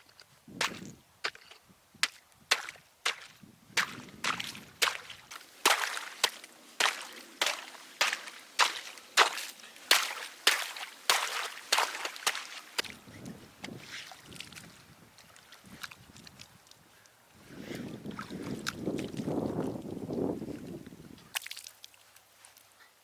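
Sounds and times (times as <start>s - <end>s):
sharp chopping strikes: 0.6s - 12.9s.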